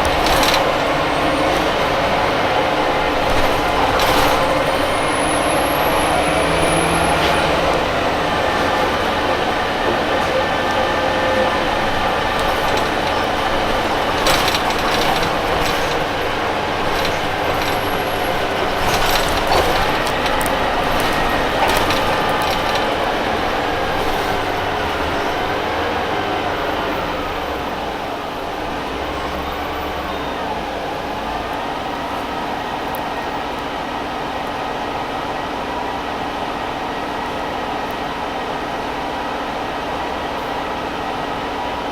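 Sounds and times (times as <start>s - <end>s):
rattles and knocks: 0.0s - 2.0s, 2.8s - 4.8s, 11.5s - 25.4s
bus engine drone: 0.0s - 41.9s
road rumble: 0.0s - 41.9s.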